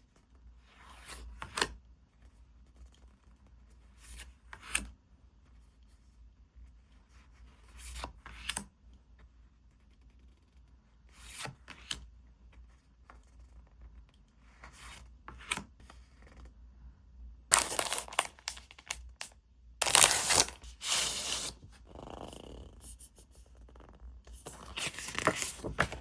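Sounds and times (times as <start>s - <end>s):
packaging rustling and crinkling: 17.5s - 21.6s, 24.5s - 26.0s
packaging tearing: 17.5s - 21.6s.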